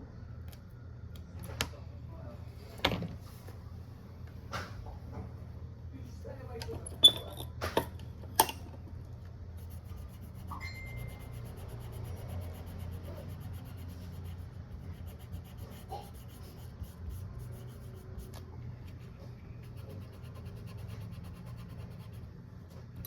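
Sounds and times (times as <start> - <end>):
steady low hum: 0.0 - 23.0
rubbing and scraping on smartphone: 9.6 - 22.3.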